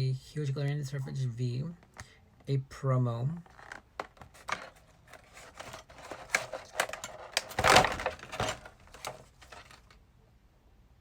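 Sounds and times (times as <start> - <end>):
packaging rustling: 3.4 - 10.0.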